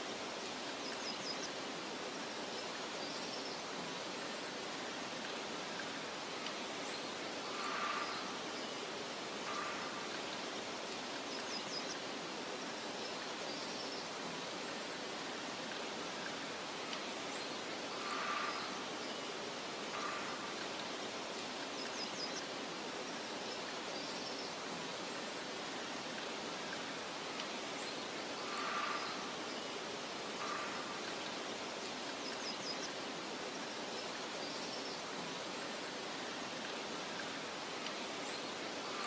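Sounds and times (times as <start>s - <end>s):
wind through grass: 0.0s - 39.0s
faint bird chirps: 27.8s - 33.0s.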